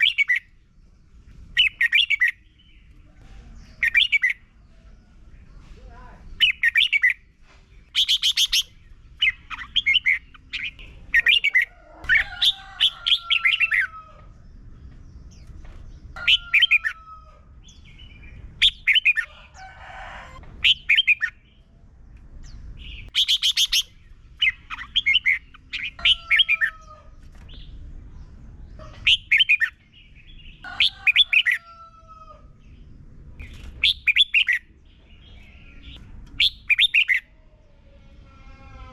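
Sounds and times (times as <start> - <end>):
faint low rumble: 8.6 - 16.2, 17.4 - 19.2, 20.1 - 23.2, 26.9 - 30.7
bird singing chirpy notes: 22.5 - 26.7.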